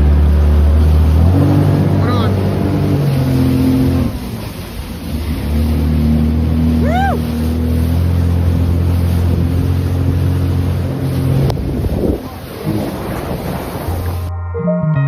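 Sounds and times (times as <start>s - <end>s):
jet ski engine running: 0.0s - 14.3s
water rushing: 0.0s - 14.3s
wind rushing: 10.7s - 14.3s.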